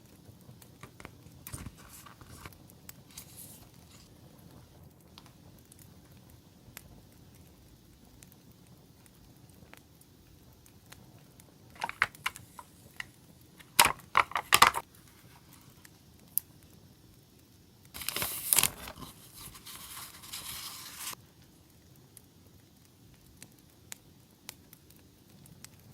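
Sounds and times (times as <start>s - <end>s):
campfire crackling ticks: 0.0s - 1.5s, 2.5s - 3.1s, 3.7s - 13.7s, 15.5s - 18.0s, 21.1s - 25.9s
packaging crinkling: 0.9s - 2.5s, 3.1s - 4.1s, 11.8s - 15.8s, 18.0s - 21.2s.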